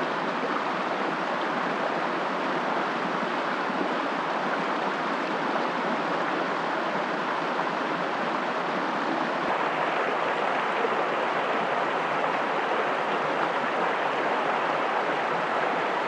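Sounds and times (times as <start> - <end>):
steady rushing noise: 9.2 - 16.0.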